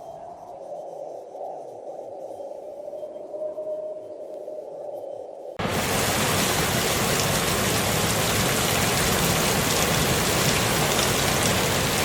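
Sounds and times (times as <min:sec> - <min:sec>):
storm rushing hiss: 0:05.6 - 0:12.0.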